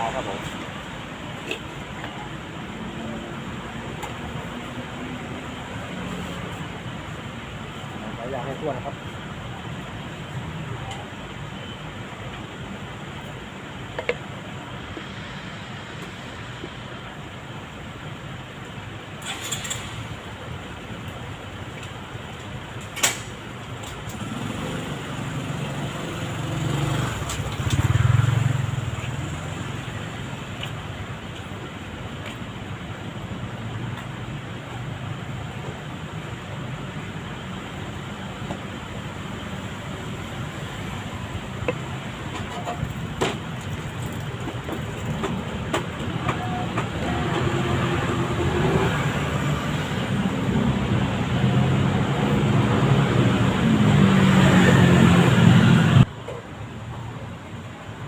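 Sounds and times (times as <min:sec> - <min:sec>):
road traffic rumble: 0:00.0 - 0:58.0
vehicle passing by: 0:47.1 - 0:56.1.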